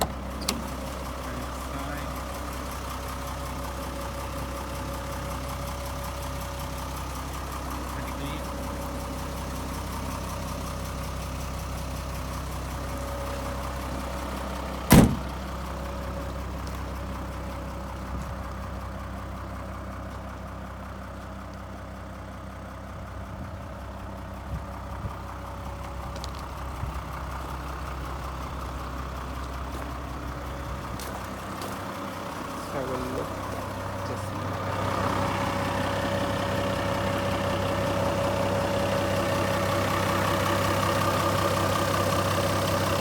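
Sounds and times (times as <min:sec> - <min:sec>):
diesel engine idling: 0:00.0 - 0:43.0.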